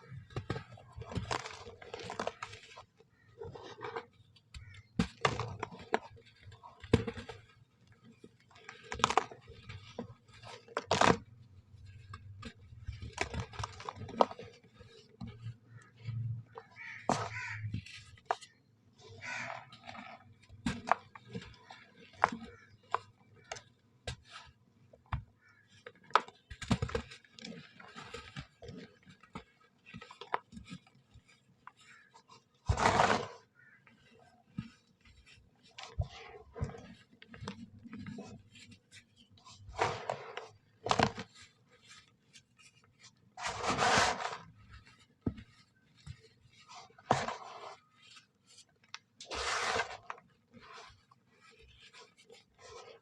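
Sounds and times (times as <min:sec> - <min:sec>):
sand being crumbled and crushed: 0:00.0 - 0:23.6, 0:25.4 - 0:53.0
small crackles: 0:00.0 - 0:53.0
sand crunching and crackling: 0:42.4 - 0:48.4.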